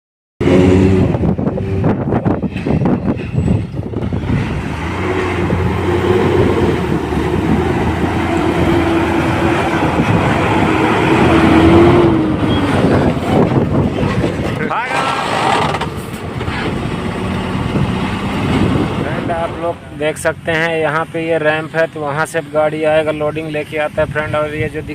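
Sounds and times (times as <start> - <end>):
heavy vehicle engine running: 0.4 - 22.5
knocks and clatter: 12.7 - 17.0.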